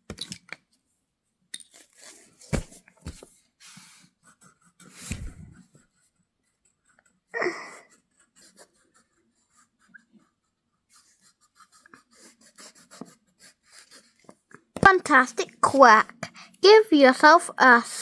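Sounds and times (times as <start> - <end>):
coloured pencil scratching on paper: 3.8 - 15.6.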